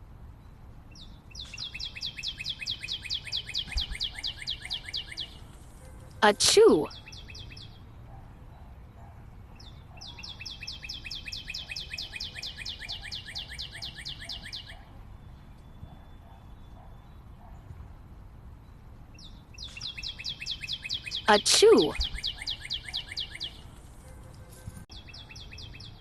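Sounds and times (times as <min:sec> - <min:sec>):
bird chirping in a rapid trill: 0:00.9 - 0:05.4, 0:06.8 - 0:07.8, 0:09.6 - 0:14.8, 0:19.2 - 0:23.6, 0:24.9 - 0:26.0.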